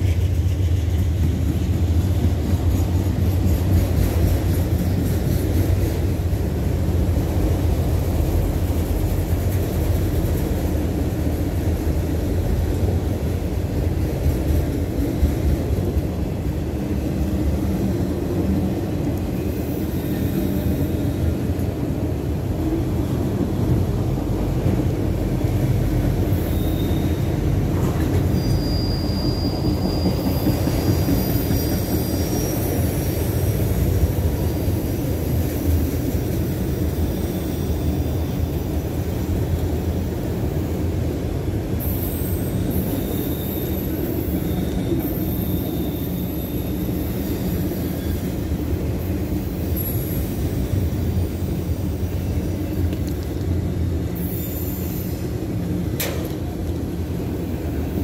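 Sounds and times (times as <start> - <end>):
train wheels rumbling on rails: 0.0 - 58.0
high-pitched squeals: 28.3 - 33.7.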